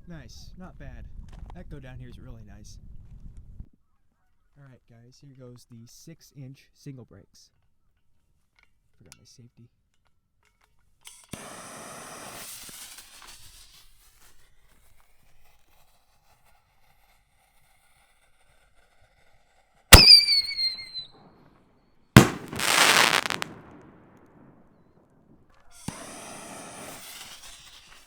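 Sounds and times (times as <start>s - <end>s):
firework launch bang with whistle: 20.0s - 21.1s, 22.2s - 24.3s
firework shell burst: 20.0s - 21.1s, 22.2s - 24.5s
rushing crackle: 22.2s - 23.9s.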